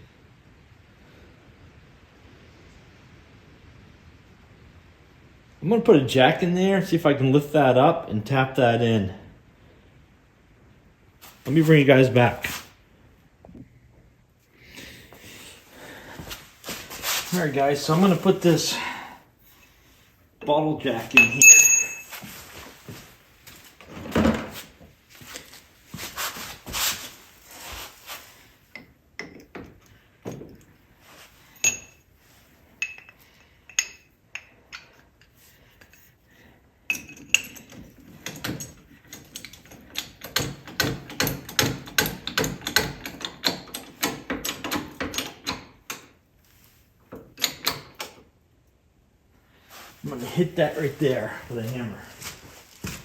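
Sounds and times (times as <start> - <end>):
metal tools clinking and knocking: 21.0 - 22.4, 28.7 - 30.7, 31.5 - 32.1, 32.8 - 36.1, 36.9 - 46.1.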